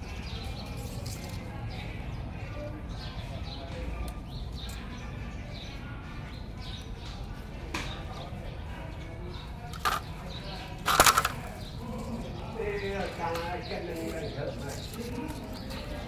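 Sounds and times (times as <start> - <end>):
outdoor background: 0.0 - 16.0.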